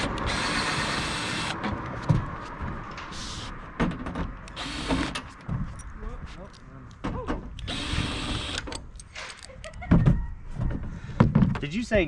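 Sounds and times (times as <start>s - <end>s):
cordless drill backing out screws: 4.5s - 5.3s, 7.6s - 9.5s.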